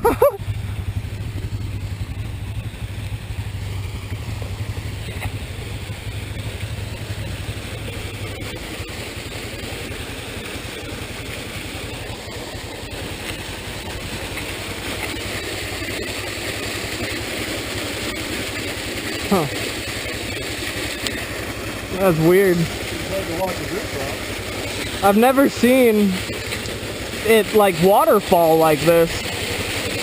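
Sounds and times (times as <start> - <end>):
atv engine humming: 0.0 - 30.0.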